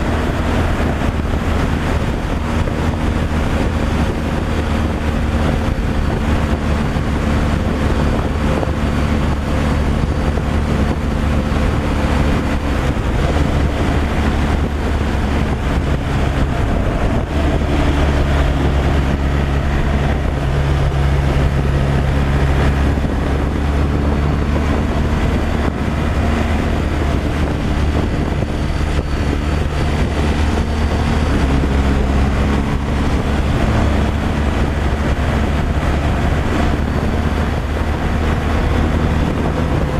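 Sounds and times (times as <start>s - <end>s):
road and wind noise: 0.0s - 39.9s
truck engine drone: 0.0s - 39.9s.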